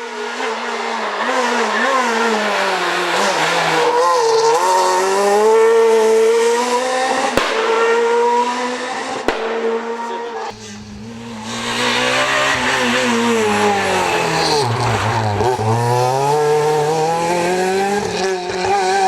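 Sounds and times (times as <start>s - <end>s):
rally car engine at high revs: 0.0s - 19.0s
sharp crack: 9.2s - 9.8s.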